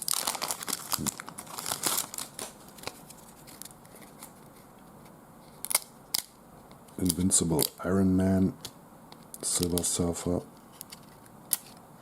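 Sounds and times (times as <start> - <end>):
card pack wrapper crinkling and tearing: 0.0 - 4.4, 5.6 - 6.3.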